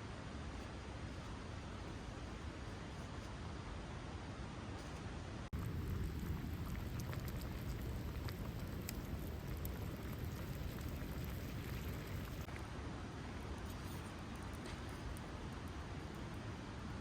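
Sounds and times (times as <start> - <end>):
campfire crackling: 5.5 - 17.0.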